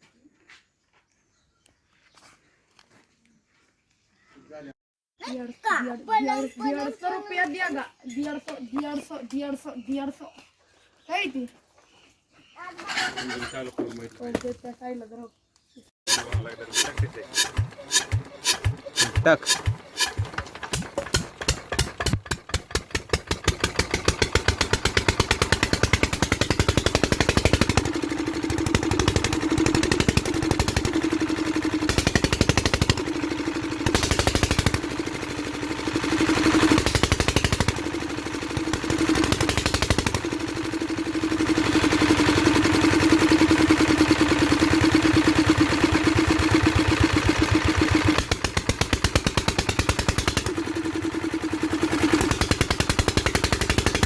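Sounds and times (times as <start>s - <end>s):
diesel engine starting and running: 16.1s - 54.0s.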